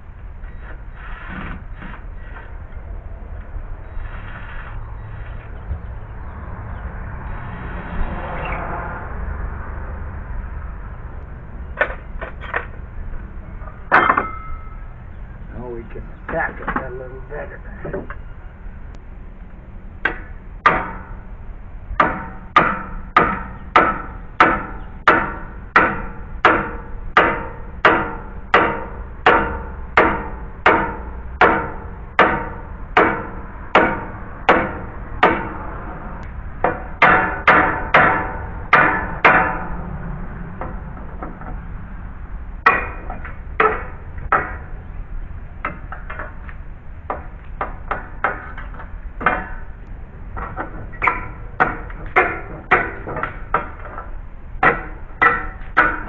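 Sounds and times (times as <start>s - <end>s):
hammer striking metal nails: 20.0s - 21.1s, 22.0s - 35.6s, 36.6s - 39.6s, 42.6s - 44.7s, 50.4s - 54.0s, 54.6s - 56.0s.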